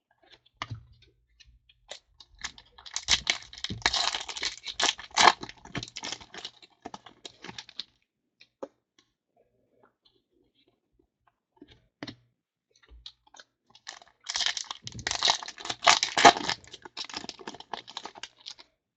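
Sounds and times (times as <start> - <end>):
wrapper tearing and crinkling: 2.5 - 7.8, 13.9 - 18.6.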